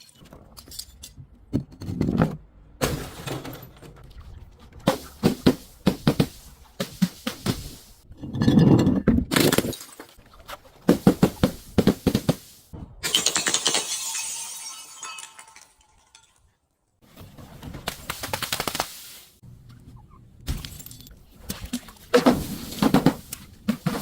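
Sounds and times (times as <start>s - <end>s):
glass shards tinkling: 13.1s - 16.4s
glass crunching: 13.1s - 16.5s.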